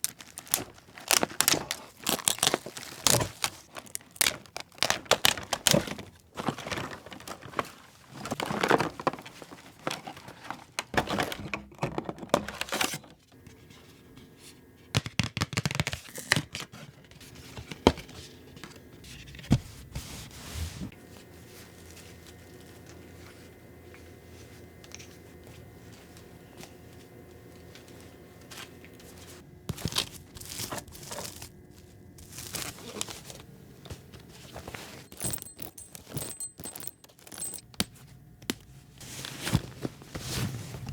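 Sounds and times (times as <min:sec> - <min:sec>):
packaging crinkling and tearing: 0:00.0 - 0:11.0, 0:29.7 - 0:33.5.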